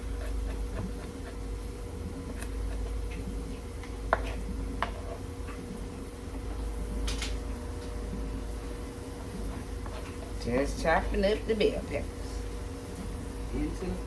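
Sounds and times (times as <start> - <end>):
knife chopping on cutting board: 0.0 - 1.4.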